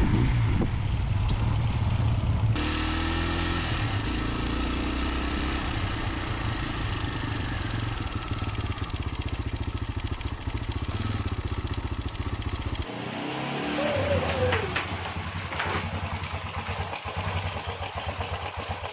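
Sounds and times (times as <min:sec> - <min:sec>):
motorcycle engine running: 0:00.0 - 0:13.0, 0:13.7 - 0:18.9.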